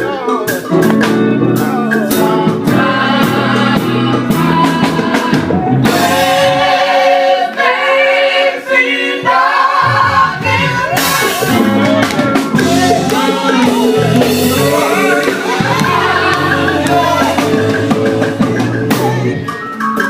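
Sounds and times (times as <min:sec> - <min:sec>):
gospel group singing: 0:00.0 - 0:19.8
backing band with drums: 0:00.0 - 0:20.0.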